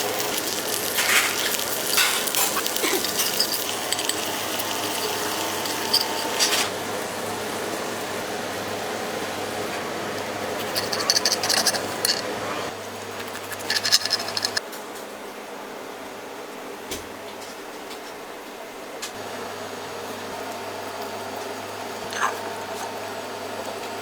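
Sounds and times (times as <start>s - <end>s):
food sizzling on a griddle: 0.0s - 9.8s
metal utensils clattering: 0.3s - 6.7s, 10.6s - 14.6s.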